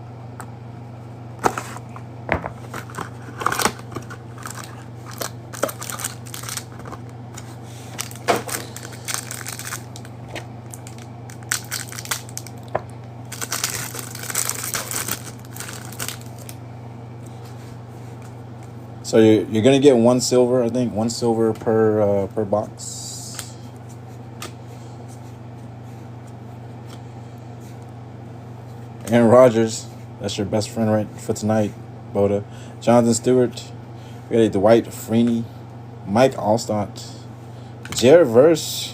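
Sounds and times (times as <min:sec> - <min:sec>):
steady low hum: 0:00.0 - 0:38.9
cardboard and plastic crinkling: 0:02.6 - 0:07.1, 0:07.9 - 0:16.5.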